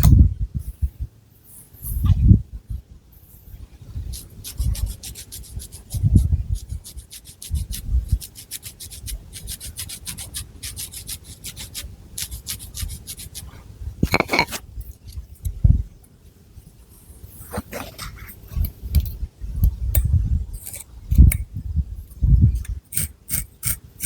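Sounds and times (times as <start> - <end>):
fingernails scratching hair: 4.1 - 14.6.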